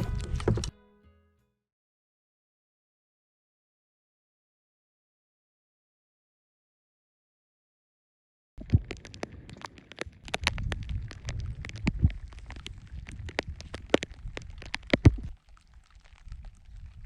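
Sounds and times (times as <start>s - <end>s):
rain tapping on microphone: 0.0s - 0.7s, 8.6s - 17.0s.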